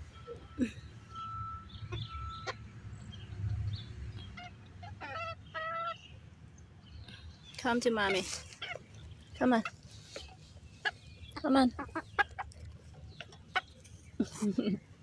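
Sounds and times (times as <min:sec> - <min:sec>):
hens clucking: 0:04.2 - 0:06.0, 0:07.8 - 0:15.0.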